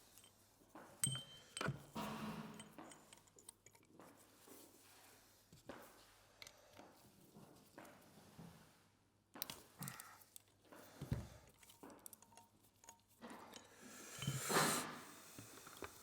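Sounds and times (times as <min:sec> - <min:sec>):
clicks of tools and metal parts: 0:01.0 - 0:04.1.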